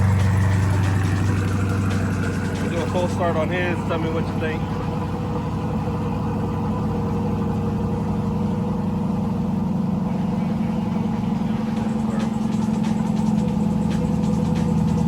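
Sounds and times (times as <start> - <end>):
sports car engine idling: 0.0 - 15.0.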